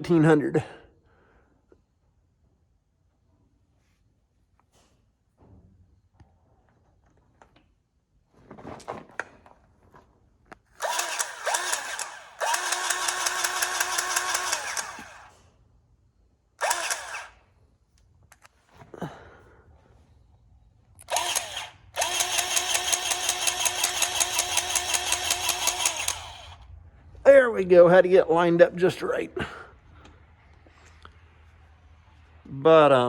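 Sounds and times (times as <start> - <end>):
grease gun motor whining: 10.8 - 15.4, 16.6 - 17.4, 21.0 - 26.7.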